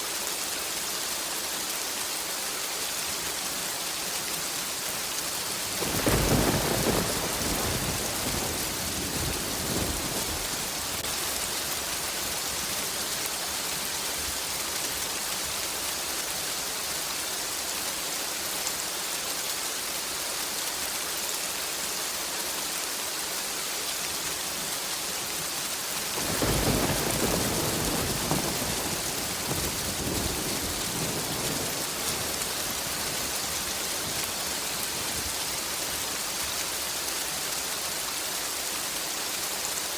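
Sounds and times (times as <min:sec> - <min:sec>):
heavy rain hissing: 0:00.0 - 0:20.6, 0:21.5 - 0:39.9
thunder rolling: 0:05.7 - 0:11.1, 0:26.2 - 0:35.5.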